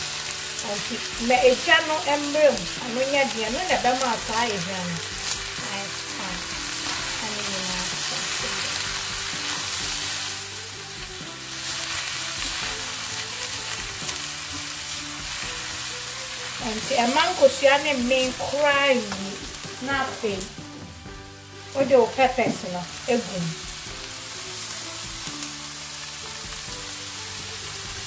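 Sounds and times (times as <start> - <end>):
food sizzling in a pan: 0.0 - 28.0
person speaking: 16.6 - 20.5.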